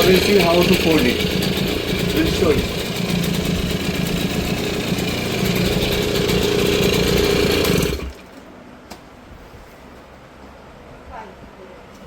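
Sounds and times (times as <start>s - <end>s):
small two-stroke engine running: 0.0s - 8.2s.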